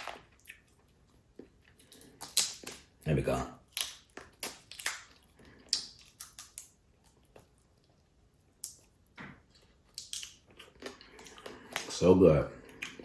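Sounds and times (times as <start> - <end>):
wet chewing: 0.0 - 3.0, 3.6 - 12.0, 12.6 - 13.0
crab shell clicking and cracking: 1.8 - 3.0, 3.6 - 7.4, 8.6 - 8.9, 9.9 - 11.9.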